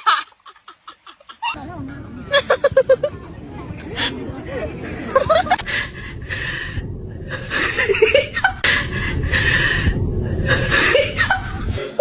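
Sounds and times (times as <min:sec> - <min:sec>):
person chuckling and laughing: 0:10.5 - 0:12.0.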